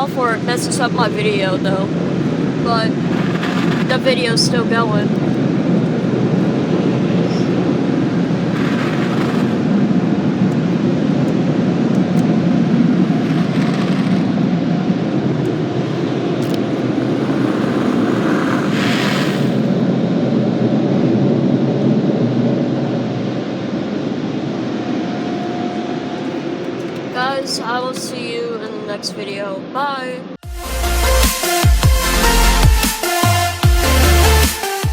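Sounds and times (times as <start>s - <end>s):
car wash machinery roaring: 5.0s - 20.4s
hissing bursts: 8.3s - 9.7s, 15.8s - 19.8s.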